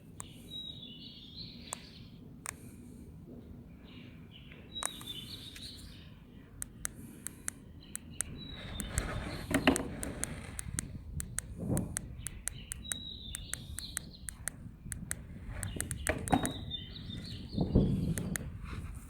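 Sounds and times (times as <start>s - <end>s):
birds chirping: 0.0s - 2.9s, 3.5s - 18.7s
sharp irregular ticks: 6.6s - 16.6s, 17.9s - 18.6s.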